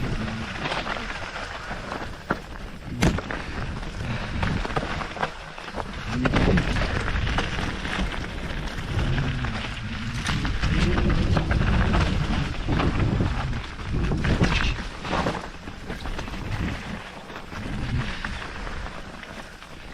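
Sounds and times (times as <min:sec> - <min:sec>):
heavy low rumble: 0:00.0 - 0:15.0
bike clattering and rattling: 0:00.0 - 0:19.9
mountain bike tyre noise: 0:00.0 - 0:19.9.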